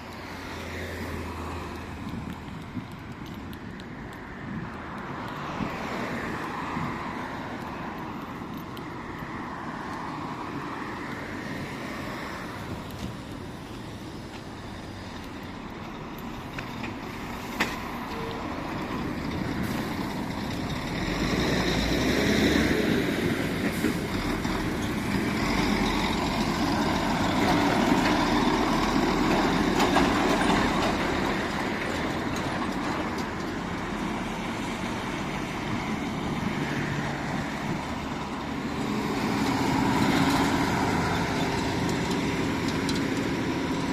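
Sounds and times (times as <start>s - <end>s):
heavy vehicle engine rumbling: 10.5s - 43.9s.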